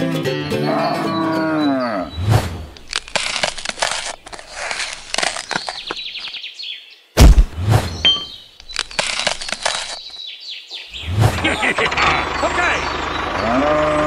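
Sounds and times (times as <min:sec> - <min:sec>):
cow mooing: 0:00.7 - 0:02.2, 0:13.4 - 0:14.0
crunching crackling noises: 0:02.2 - 0:06.4, 0:07.2 - 0:10.2
heavy thump: 0:07.2 - 0:08.0.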